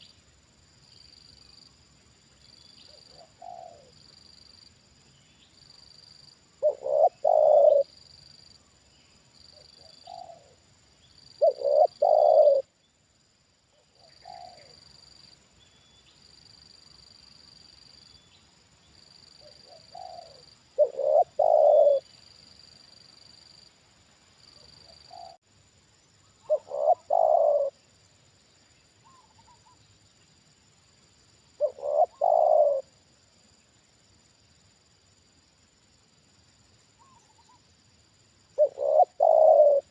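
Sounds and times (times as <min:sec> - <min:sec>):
dove cooing: 0:02.9 - 0:04.0, 0:06.6 - 0:07.9, 0:09.8 - 0:10.6, 0:11.4 - 0:12.7, 0:14.0 - 0:14.8, 0:19.4 - 0:22.1, 0:24.9 - 0:25.4, 0:26.4 - 0:27.8, 0:31.6 - 0:32.9, 0:38.6 - 0:39.9.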